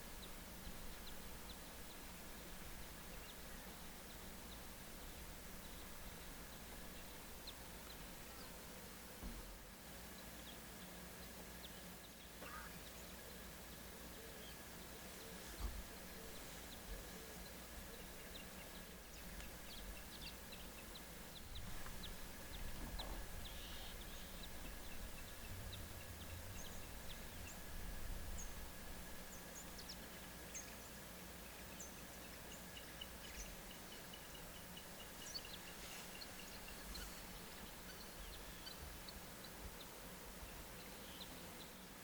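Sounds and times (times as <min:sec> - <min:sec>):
birds chirping: 0:00.0 - 0:42.0
low rumble of wind: 0:15.6 - 0:31.6.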